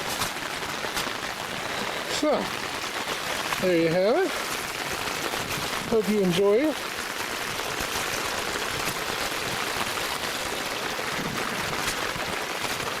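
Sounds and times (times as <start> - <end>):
running rainwater: 0.0 - 13.0.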